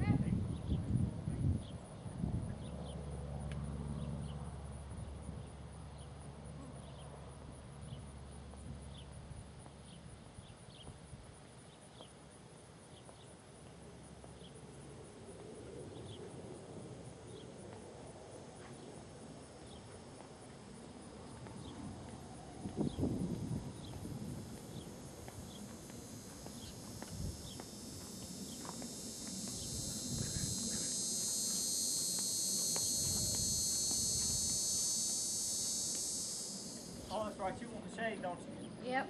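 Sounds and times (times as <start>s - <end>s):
insects chirping: 0.2s - 39.0s
steady high hiss: 9.2s - 39.0s.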